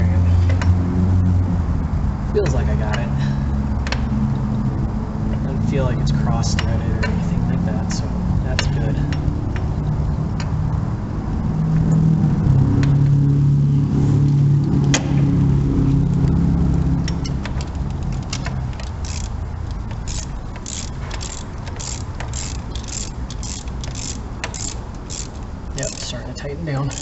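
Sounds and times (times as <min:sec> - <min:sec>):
vehicle engine humming: 0:00.0 - 0:27.0
ratchet wrench clicking: 0:17.0 - 0:26.2, 0:26.8 - 0:27.0.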